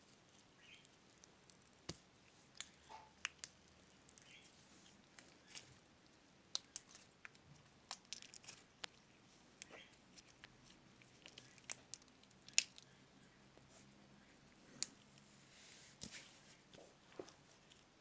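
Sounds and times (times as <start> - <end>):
slime clicking and popping: 11.2 - 12.8.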